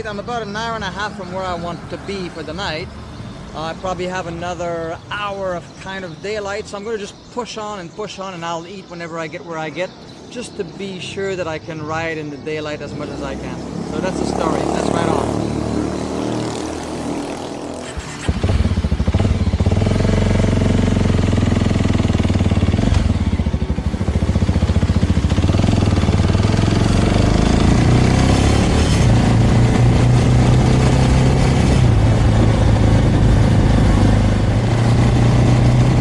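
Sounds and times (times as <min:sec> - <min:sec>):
motorcycle engine accelerating: 0:13.7 - 0:36.0.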